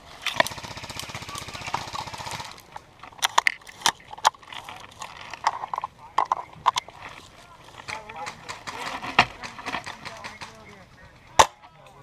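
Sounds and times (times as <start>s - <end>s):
airsoft gun automatic rattle: 0.1s - 12.0s.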